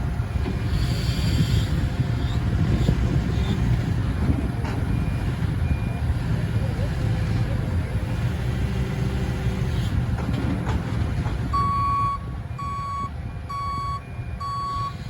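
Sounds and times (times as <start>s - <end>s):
diesel engine rumbling: 0.0s - 15.0s
reversing alarm beeping: 11.5s - 15.0s.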